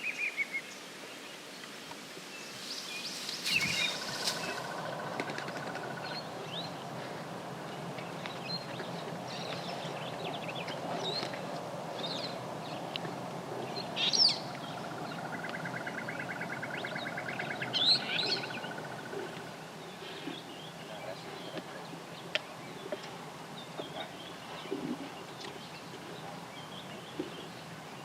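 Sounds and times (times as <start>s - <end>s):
steady background hiss: 0.0s - 28.0s
loud sweeping bird calls: 2.4s - 28.0s
rapid bird trill: 3.1s - 6.8s.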